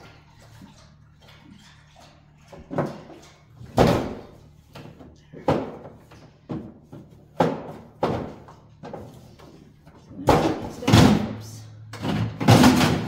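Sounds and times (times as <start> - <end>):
hard items knocking in freezer: 3.6 - 9.1, 12.0 - 13.0.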